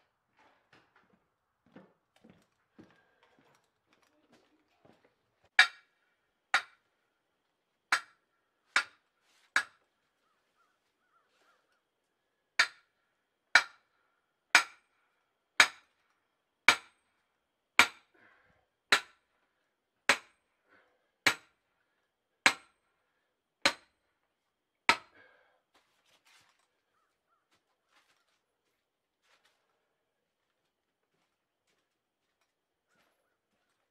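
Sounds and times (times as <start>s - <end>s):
hammer driving nails into wood: 5.6s - 5.9s, 7.9s - 8.2s, 12.6s - 12.9s, 13.6s - 13.8s, 14.6s - 14.8s, 15.6s - 15.9s, 16.7s - 17.0s, 17.8s - 18.1s, 18.9s - 19.2s, 20.1s - 20.4s, 22.4s - 22.7s, 23.6s - 23.9s, 24.9s - 25.1s.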